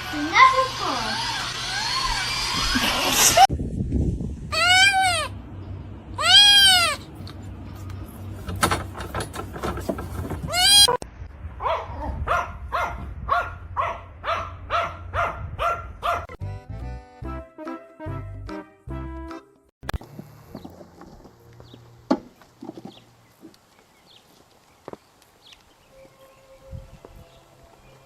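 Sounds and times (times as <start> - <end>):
animal calling loudly: 4.5 - 5.4, 6.2 - 7.1.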